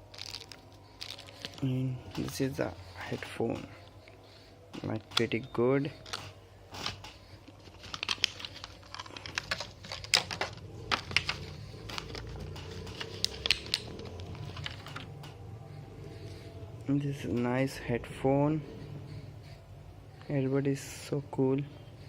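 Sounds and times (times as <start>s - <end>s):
packaging crinkling and rustling: 0.0s - 3.2s, 6.0s - 15.4s.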